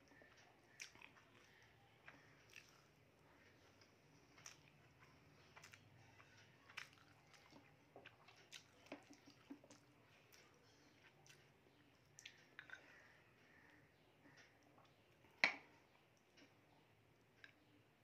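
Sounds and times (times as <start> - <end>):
person chewing: 0.1 - 13.6.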